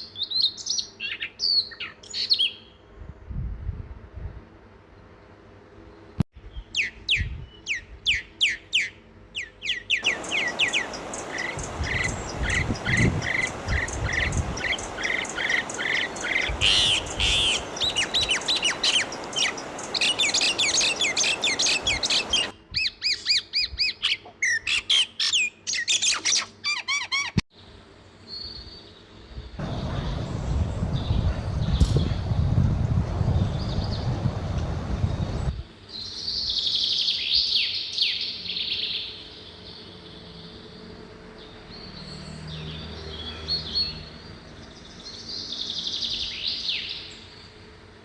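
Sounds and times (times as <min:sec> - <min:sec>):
birds chirping: 0:10.0 - 0:22.5, 0:29.6 - 0:35.5
steady background hiss: 0:10.0 - 0:22.6, 0:27.6 - 0:35.9.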